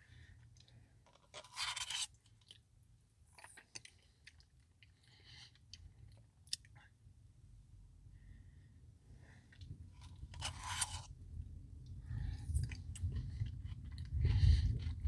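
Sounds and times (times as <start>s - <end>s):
chewing and crunching: 0.6s - 2.6s, 3.3s - 6.7s, 9.5s - 11.1s, 12.2s - 15.0s.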